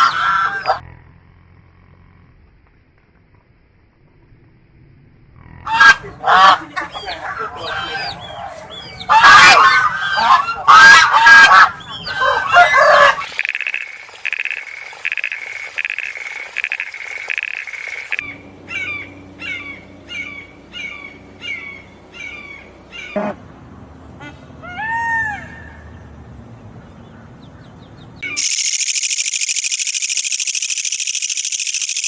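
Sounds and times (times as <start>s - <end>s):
harsh goose-like bird honking: 5.7s - 13.3s
pulsed bird calls: 5.7s - 23.2s, 28.2s - 32.0s
low background hum: 18.0s - 32.0s.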